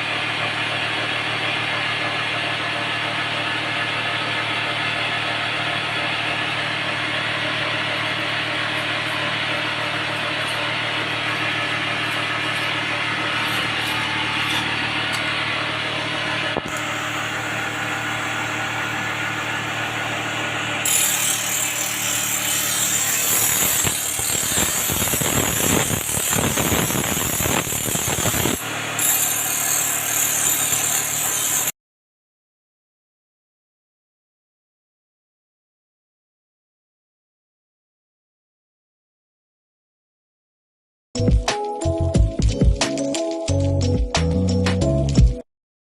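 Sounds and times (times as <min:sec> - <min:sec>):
power tool motor hum: 0:05.8 - 0:31.7.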